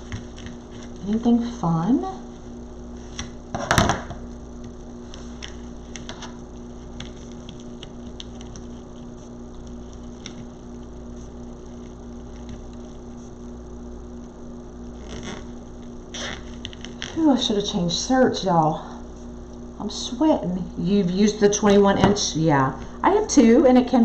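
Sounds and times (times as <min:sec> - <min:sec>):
low electrical hum: 0:00.0 - 0:24.0
ribbon clicks and rustles: 0:04.6 - 0:13.0.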